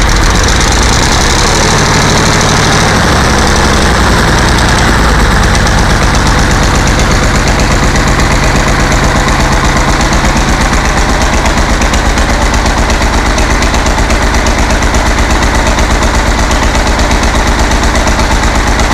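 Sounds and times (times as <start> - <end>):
diesel engine idling: 0.0 - 18.9.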